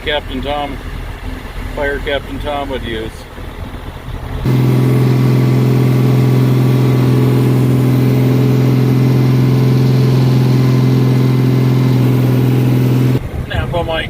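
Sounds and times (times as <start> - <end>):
loud steady hum: 4.4 - 13.3.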